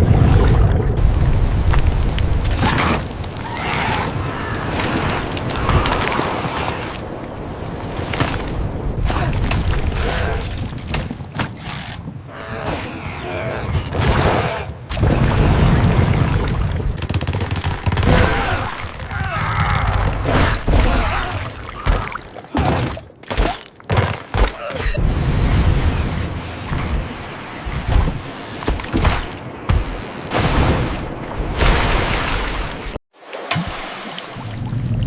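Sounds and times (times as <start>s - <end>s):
rushing water-like sound: 0.0s - 10.9s, 14.0s - 17.1s, 30.3s - 35.0s.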